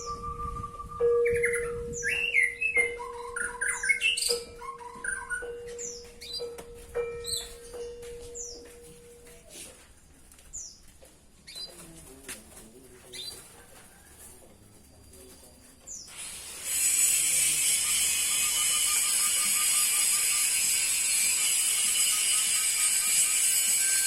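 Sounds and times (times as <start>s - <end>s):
canary singing: 0.0s - 9.4s
canary chirping: 1.2s - 9.0s.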